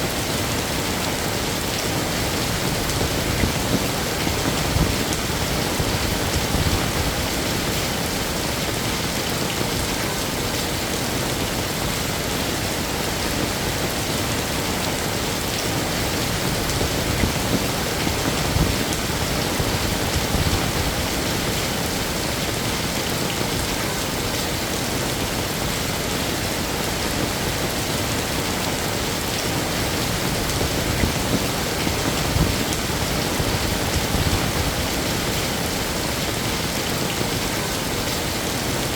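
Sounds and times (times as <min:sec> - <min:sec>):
heavy rain on hard surfaces: 0:00.0 - 0:38.9.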